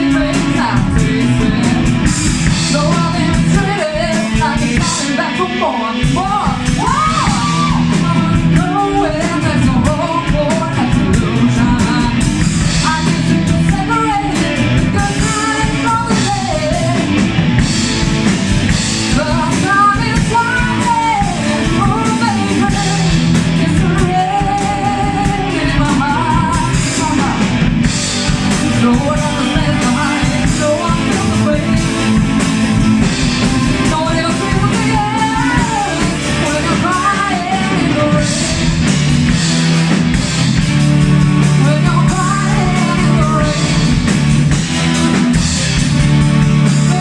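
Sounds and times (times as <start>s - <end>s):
melodic lead line with vibrato: 0.0s - 47.0s
rock band playing: 0.0s - 47.0s.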